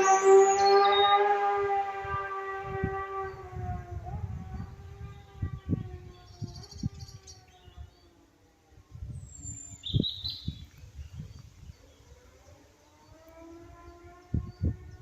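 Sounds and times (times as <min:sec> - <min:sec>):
bird chirping: 0:00.0 - 0:01.2, 0:04.4 - 0:08.3, 0:09.1 - 0:15.0
motorcycle engine receding: 0:00.0 - 0:06.9, 0:12.0 - 0:15.0.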